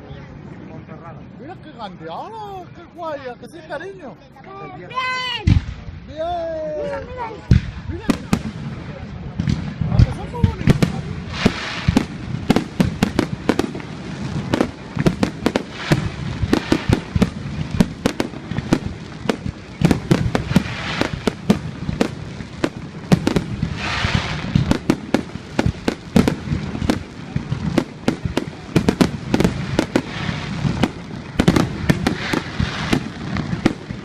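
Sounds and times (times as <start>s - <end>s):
fireworks bangs: 5.0s - 6.2s, 6.9s - 34.0s
fireworks hiss: 7.4s - 34.0s.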